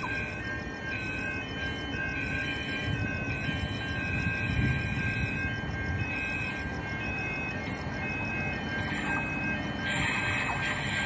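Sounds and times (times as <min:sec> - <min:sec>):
train rumbling past: 0:00.0 - 0:11.0
thin high whine: 0:07.6 - 0:11.0.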